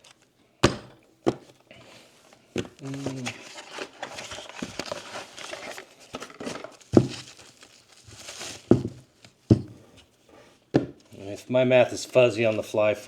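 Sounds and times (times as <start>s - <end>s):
packaging crinkling and rustling: 2.2s - 9.6s
items being set down: 3.8s - 10.1s.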